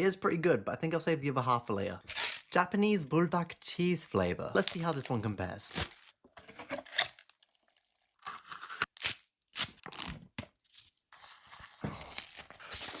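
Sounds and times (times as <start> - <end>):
plastic wrapper crinkling and tearing: 4.6 - 13.0
snack crunching: 6.8 - 10.0.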